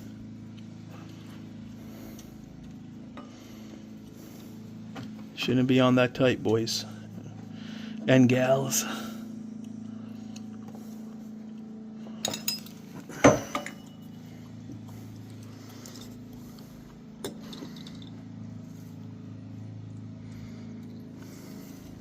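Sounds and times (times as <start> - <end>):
low hum: 0.0 - 22.0
metal tools clinking: 12.1 - 14.2.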